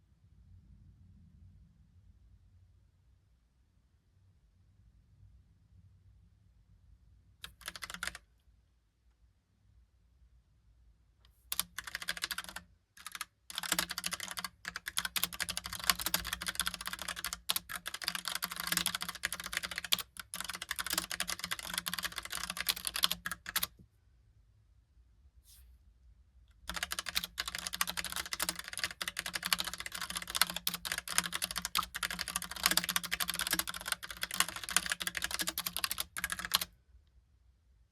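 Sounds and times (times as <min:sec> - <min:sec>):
mechanical keyboard typing: 0:07.4 - 0:08.2, 0:11.5 - 0:23.8, 0:26.7 - 0:36.7.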